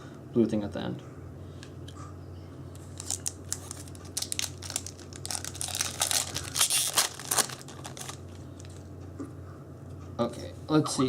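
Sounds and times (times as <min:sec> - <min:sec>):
foil wrapper crinkling and tearing: 0:02.9 - 0:08.7.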